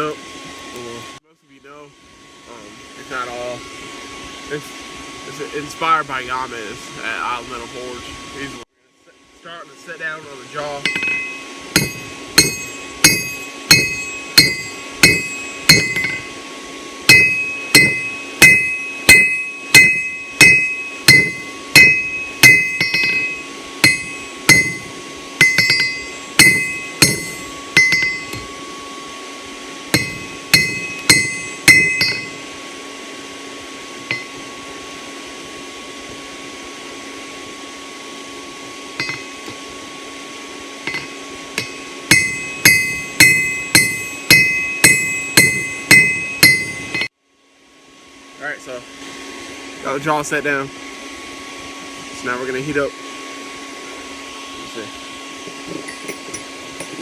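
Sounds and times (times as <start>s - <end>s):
steady hum: 0.0s - 57.0s
hammer striking steel on anvil: 10.6s - 16.3s, 17.1s - 28.6s, 29.9s - 32.4s, 34.0s - 34.5s, 39.0s - 39.6s, 40.8s - 47.1s, 55.8s - 57.0s.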